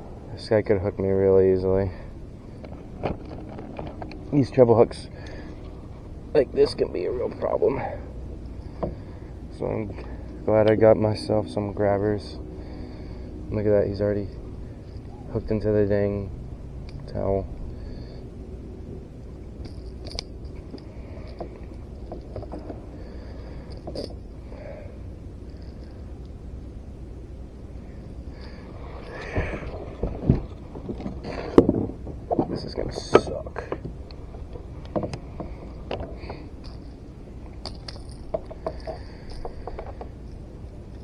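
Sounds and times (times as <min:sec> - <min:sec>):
light clicks taps and rustles: 0:02.6 - 0:05.9, 0:19.6 - 0:24.6, 0:28.0 - 0:41.0.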